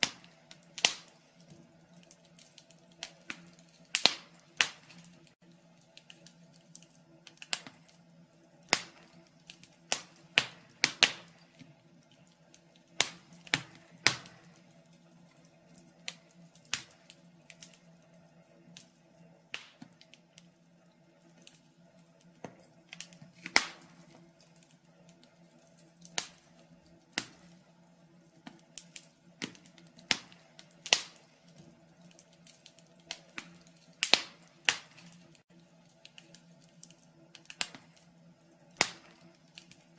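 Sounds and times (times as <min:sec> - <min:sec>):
faint steady hum: 0:00.0 - 0:39.9
fire crackling and popping: 0:00.0 - 0:39.9.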